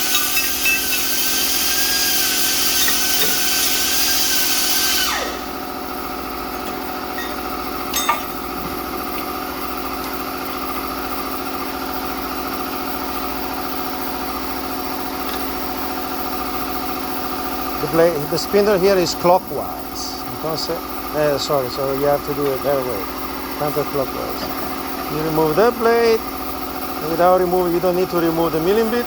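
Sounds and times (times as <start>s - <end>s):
machinery whine and hiss: 0.0s - 9.9s
low machinery hum: 0.0s - 13.4s.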